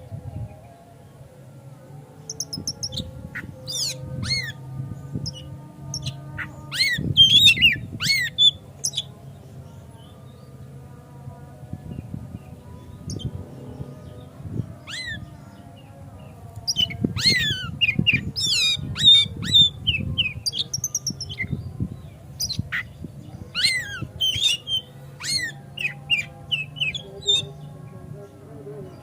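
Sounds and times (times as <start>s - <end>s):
songbird whistling song: 2.3s - 4.6s, 5.2s - 9.1s, 16.7s - 21.7s, 22.4s - 27.6s.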